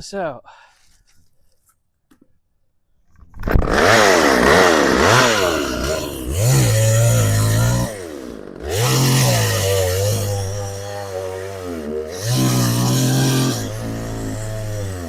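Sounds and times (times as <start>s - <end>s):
chainsaw engine revving: 3.4s - 15.0s.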